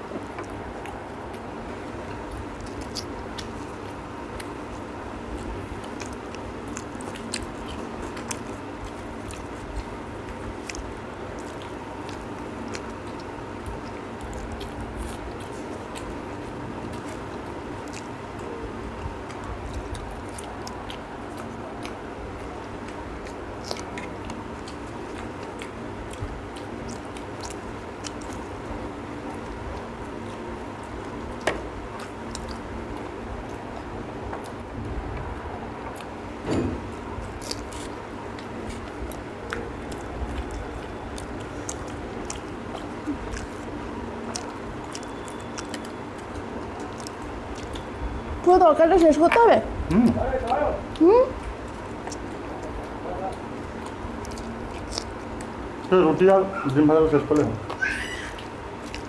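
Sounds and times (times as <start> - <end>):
background hum: 0.0 - 59.0
people chewing food: 0.0 - 59.0
wet mouth clicks and smacks: 37.3 - 47.9, 50.4 - 55.9.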